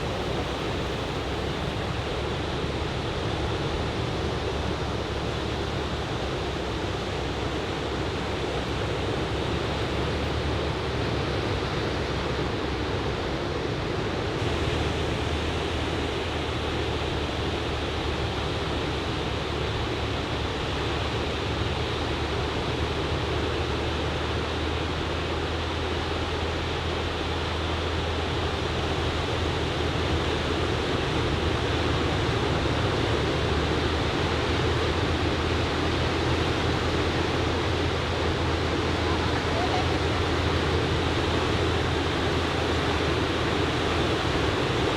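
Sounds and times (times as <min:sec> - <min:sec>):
ocean surf breaking: 0:00.0 - 0:13.3, 0:25.3 - 0:44.9.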